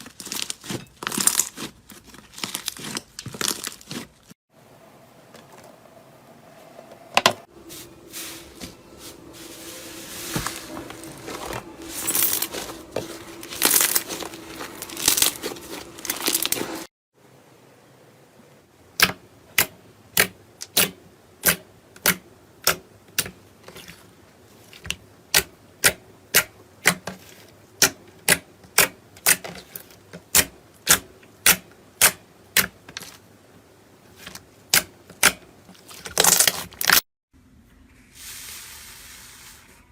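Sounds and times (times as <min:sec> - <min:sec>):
crinkling and crackling: 0:00.0 - 0:04.4, 0:07.6 - 0:16.9.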